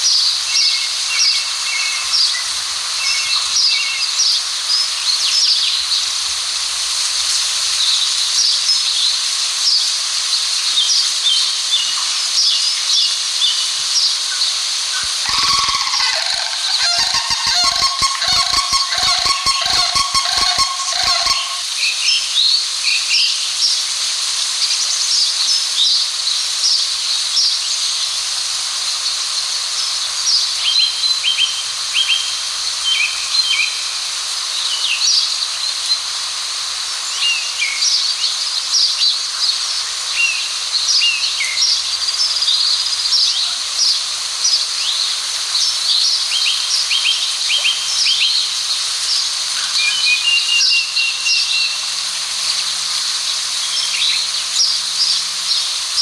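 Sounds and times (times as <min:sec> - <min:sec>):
steady high hiss: 0:00.0 - 0:56.0
small birds chirping: 0:15.0 - 0:21.6.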